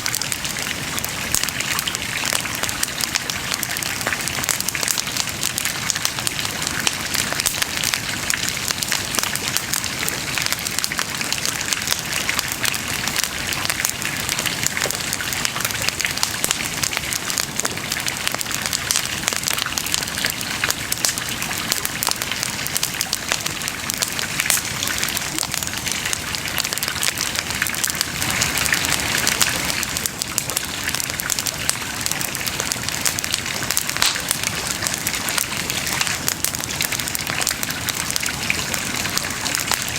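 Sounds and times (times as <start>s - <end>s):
bonfire crackling: 0.0s - 39.9s.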